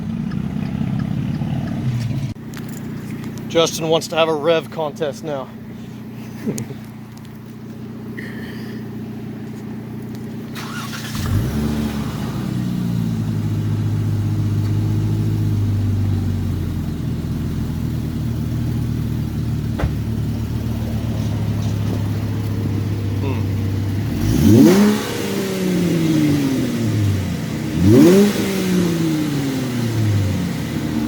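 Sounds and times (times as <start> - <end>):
car engine idling: 0.0 - 31.0
engine starting: 10.5 - 12.7.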